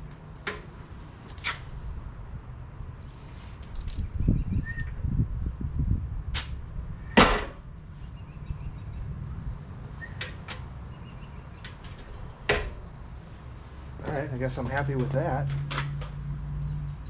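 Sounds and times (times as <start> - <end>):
metal clicks and knocks: 0.4 - 0.8, 11.6 - 13.0.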